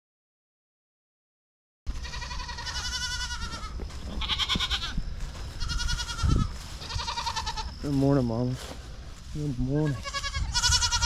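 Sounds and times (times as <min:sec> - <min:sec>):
livestock bleating: 0:01.9 - 0:07.8, 0:09.6 - 0:11.0.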